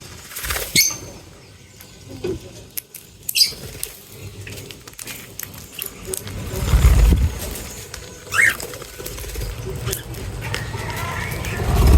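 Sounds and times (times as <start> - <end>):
birds pecking and scratching: 0.0 - 11.9
short high bird chirp: 8.3 - 8.6.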